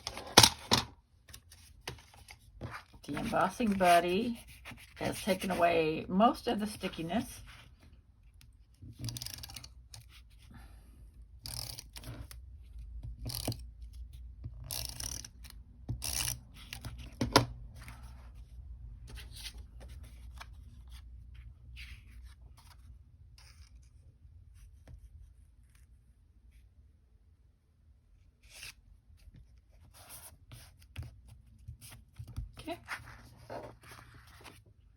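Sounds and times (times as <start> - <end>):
paper rustling and cutting: 1.3 - 5.6.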